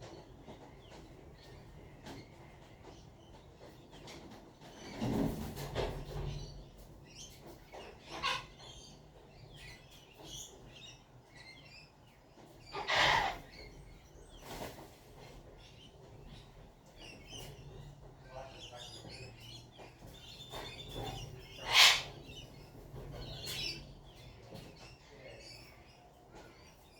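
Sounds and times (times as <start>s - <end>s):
birds chirping: 0.0s - 26.9s
harsh bird calls: 6.2s - 26.9s.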